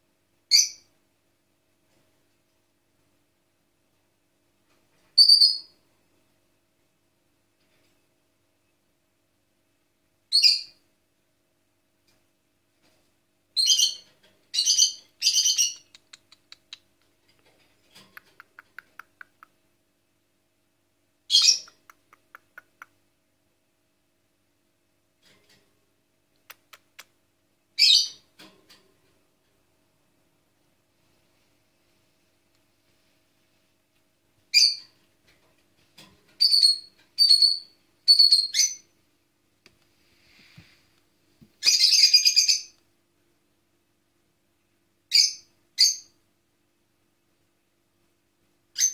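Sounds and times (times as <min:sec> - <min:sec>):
bird chirping: 0:00.5 - 0:00.9, 0:05.2 - 0:05.8, 0:10.3 - 0:10.8, 0:13.6 - 0:16.9, 0:21.3 - 0:22.9, 0:27.8 - 0:28.3, 0:34.5 - 0:34.9, 0:36.4 - 0:39.0, 0:41.6 - 0:42.8, 0:45.1 - 0:46.2.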